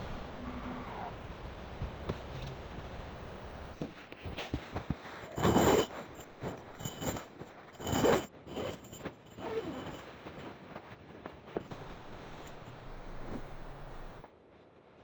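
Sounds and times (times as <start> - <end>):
rasping scraping strokes: 11.7 - 14.2.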